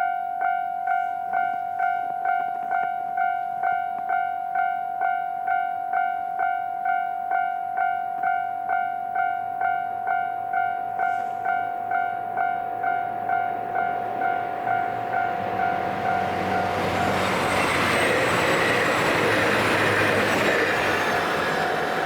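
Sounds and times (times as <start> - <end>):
level crossing alarm ringing: 0.0 - 22.0
diesel train rushing past: 11.0 - 22.0.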